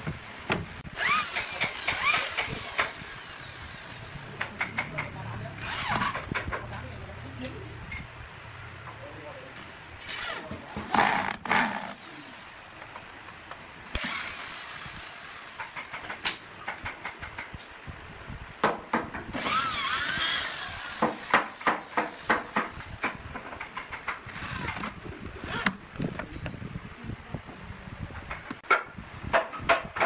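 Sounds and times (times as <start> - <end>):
drill whining: 0.9 - 4.4, 5.6 - 6.3, 10.8 - 12.6, 13.9 - 16.3, 19.4 - 23.0, 24.3 - 25.8.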